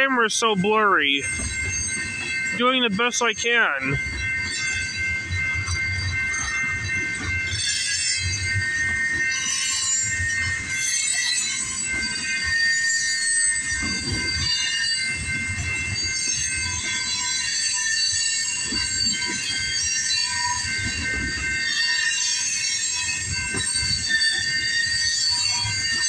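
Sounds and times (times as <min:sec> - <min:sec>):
train wheels squealing: 0:01.2 - 0:02.6, 0:03.9 - 0:26.0.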